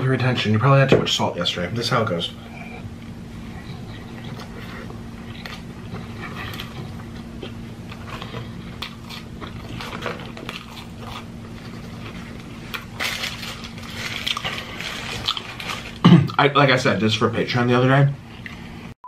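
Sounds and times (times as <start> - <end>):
person chewing with wet clicks: 3.5 - 13.0
paper wrapper crinkling: 9.2 - 16.0.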